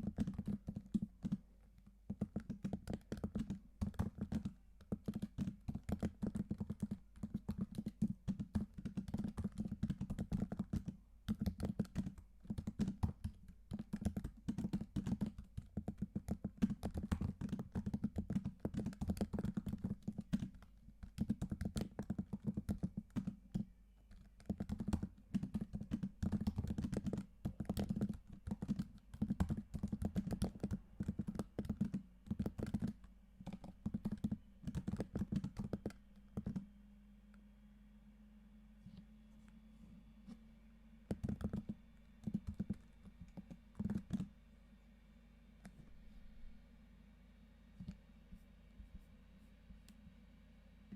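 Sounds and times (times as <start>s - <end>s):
typing on a keyboard: 0.0s - 36.7s, 41.1s - 44.3s.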